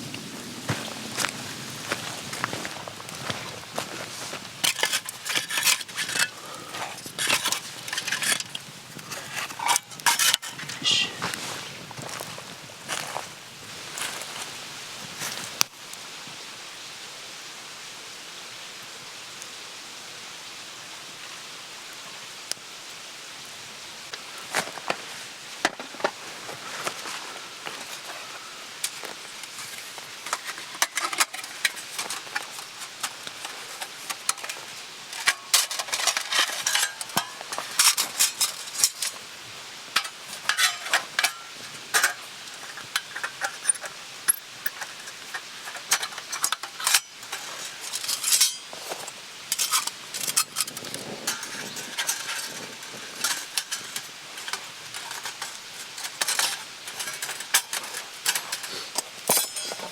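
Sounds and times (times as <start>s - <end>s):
faint hiss: 0.0s - 59.9s
metal utensils clinking on cookware: 4.6s - 11.3s, 29.6s - 39.2s, 39.9s - 59.9s.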